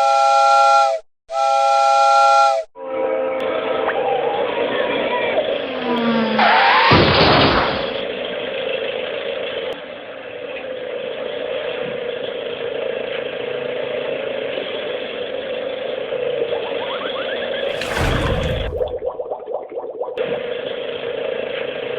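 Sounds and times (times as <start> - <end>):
loud rushing burst: 17.7 - 19.2.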